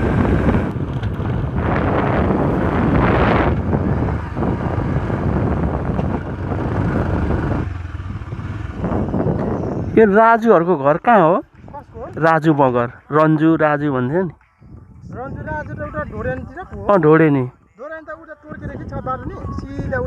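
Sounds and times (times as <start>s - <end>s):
vehicle driving on road: 0.0s - 12.7s
wind buffeting microphone: 0.0s - 12.9s, 14.2s - 20.0s.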